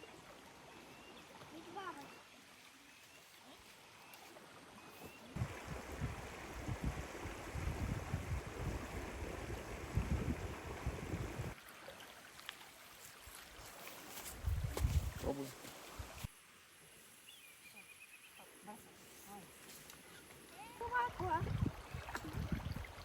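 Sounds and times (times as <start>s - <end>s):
wind buffeting microphone: 5.4s - 11.6s, 14.4s - 15.3s, 21.0s - 23.0s.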